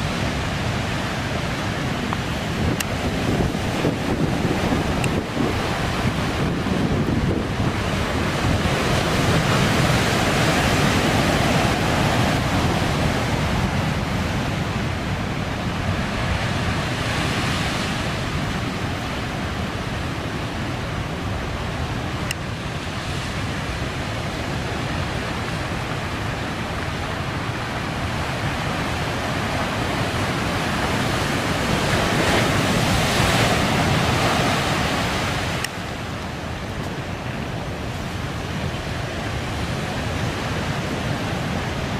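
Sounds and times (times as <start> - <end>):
heavy waves breaking: 0.0 - 41.9
wind on microphone: 0.0 - 41.9.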